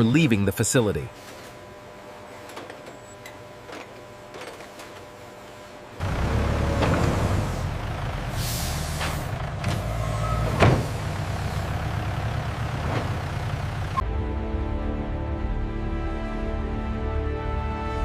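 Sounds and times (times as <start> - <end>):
factory machinery humming: 0.0 - 14.0
machinery clunks: 6.0 - 8.0, 8.7 - 12.0, 12.7 - 14.0
air hiss: 8.3 - 9.3
music: 14.0 - 18.0.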